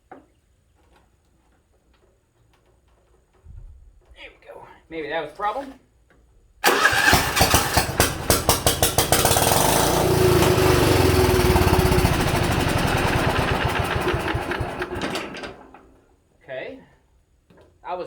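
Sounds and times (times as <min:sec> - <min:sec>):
lawn tractor engine running: 0:06.6 - 0:16.0.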